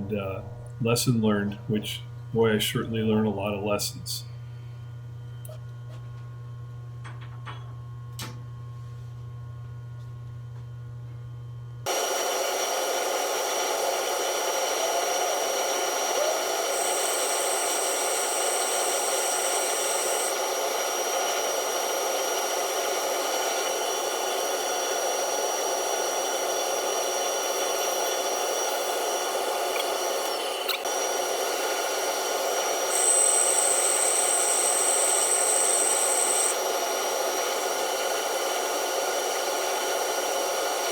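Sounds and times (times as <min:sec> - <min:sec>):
low steady hum: 0:00.0 - 0:08.0
metal lathe machining: 0:11.9 - 0:40.9
high whine: 0:14.7 - 0:20.4.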